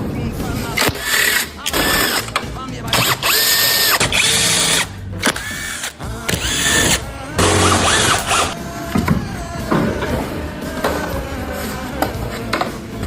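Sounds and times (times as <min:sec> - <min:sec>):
power drill whining: 0:00.8 - 0:08.6.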